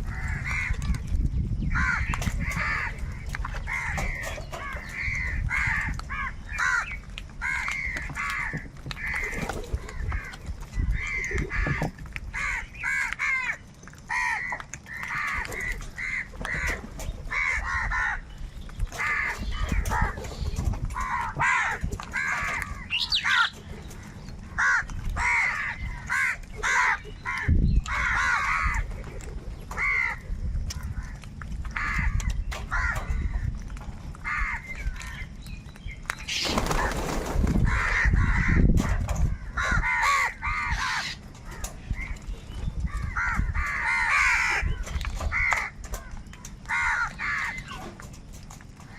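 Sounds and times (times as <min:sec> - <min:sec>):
crows cawing: 0:00.0 - 0:00.9, 0:01.7 - 0:18.3, 0:19.0 - 0:20.2, 0:21.0 - 0:28.9, 0:29.7 - 0:31.2, 0:31.8 - 0:33.5, 0:34.2 - 0:35.2, 0:37.6 - 0:42.2, 0:42.9 - 0:47.9.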